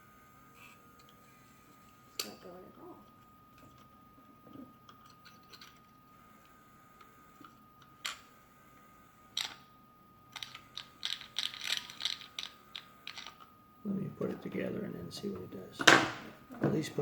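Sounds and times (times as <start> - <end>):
small plastic clicks and rattles: 10.3 - 13.5.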